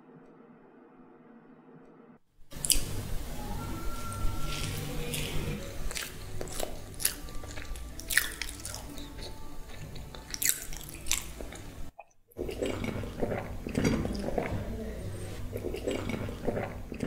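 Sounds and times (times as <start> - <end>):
quiet background music: 1.9 - 17.0
biting and chewing: 2.5 - 3.0, 4.4 - 17.0.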